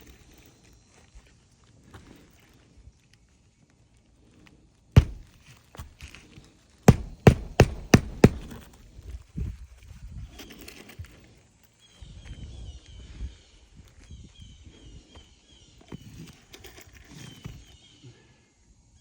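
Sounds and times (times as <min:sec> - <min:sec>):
hammer striking shingle roof: 0:05.0 - 0:05.4, 0:06.9 - 0:08.7.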